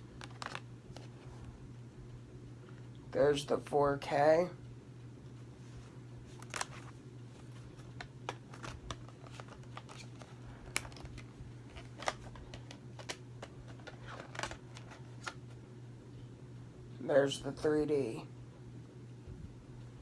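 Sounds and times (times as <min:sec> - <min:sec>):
steady low hum: 0:00.0 - 0:20.0
light clicks and taps of discs: 0:00.1 - 0:01.2.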